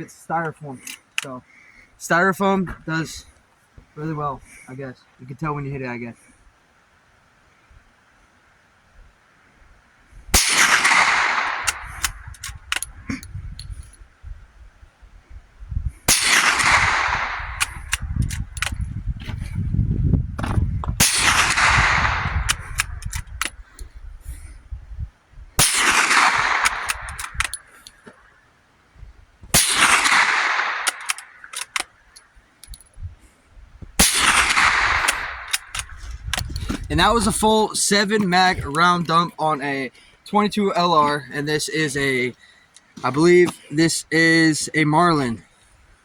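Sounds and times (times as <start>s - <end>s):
rifle shots: 10.4s - 13.0s, 16.1s - 18.8s, 21.0s - 23.6s, 25.6s - 27.7s, 29.5s - 32.0s, 34.0s - 37.4s
small sharp clicks: 10.4s - 14.0s, 16.1s - 18.9s, 21.0s - 23.9s, 25.6s - 28.3s, 29.6s - 32.9s, 34.0s - 36.9s.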